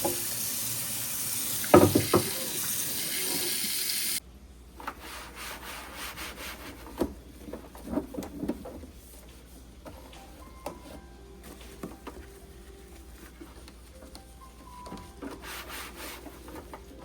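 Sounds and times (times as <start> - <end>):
tap water running: 0.0 - 4.2.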